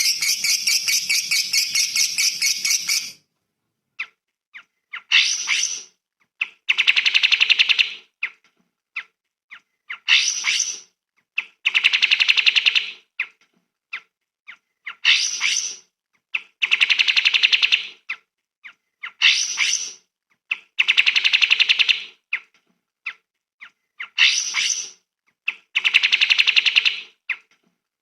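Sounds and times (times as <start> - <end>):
songbird chirps and trill: 0.0 - 3.2.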